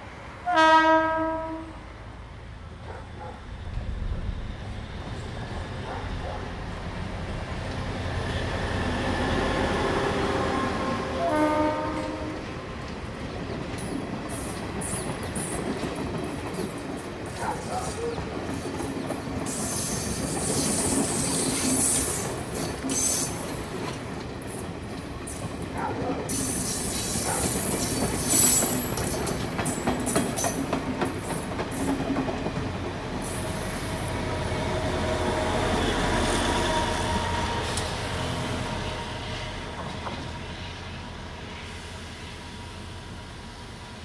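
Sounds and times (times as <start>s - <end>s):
train engine drone: 0.0s - 44.0s
train wheels squealing and clicking: 13.7s - 34.3s, 34.9s - 38.5s.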